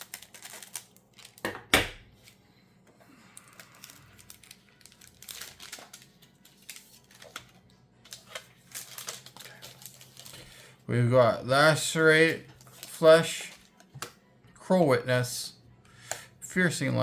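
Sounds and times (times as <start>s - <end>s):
foil wrapper ripping: 0.0s - 1.5s, 3.3s - 10.7s, 12.6s - 13.8s
foil wrapper crinkling: 0.0s - 1.6s, 3.3s - 10.7s, 12.2s - 13.9s.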